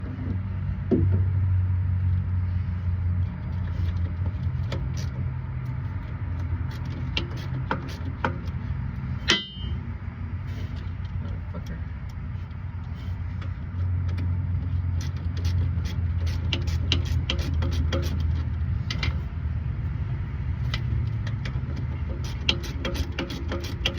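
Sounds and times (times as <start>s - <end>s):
steady low hum: 0.0s - 23.9s
ringing metal clang: 9.2s - 9.9s.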